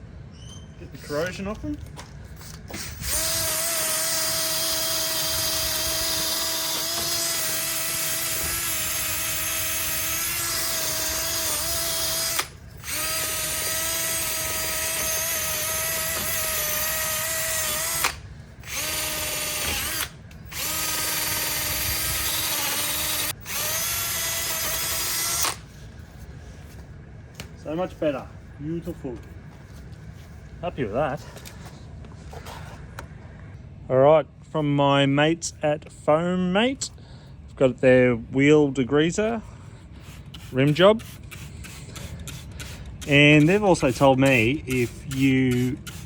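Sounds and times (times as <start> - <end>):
wire wheel tool whining: 2.3 - 25.9, 40.2 - 46.0.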